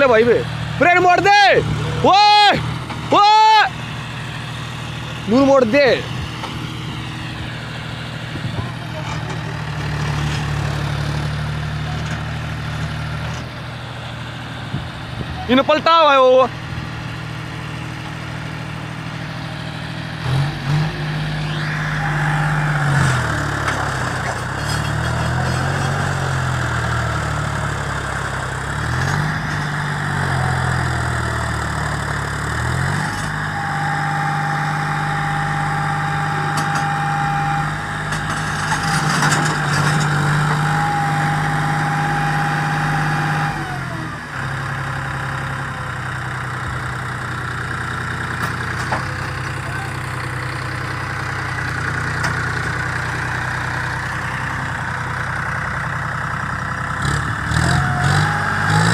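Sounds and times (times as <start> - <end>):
tractor diesel engine revving: 0.0 - 58.9
high whine: 20.9 - 24.2.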